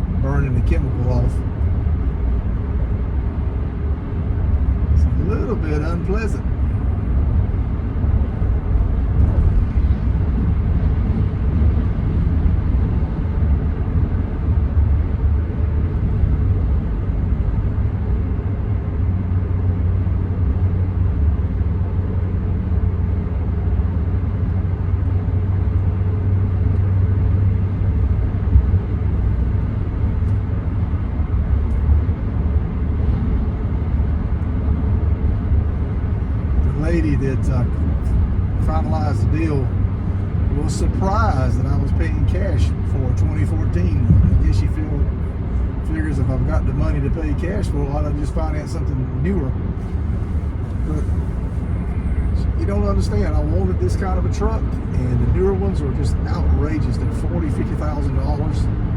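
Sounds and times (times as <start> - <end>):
road noise: 0.0 - 58.9
truck engine rumble: 0.0 - 58.9.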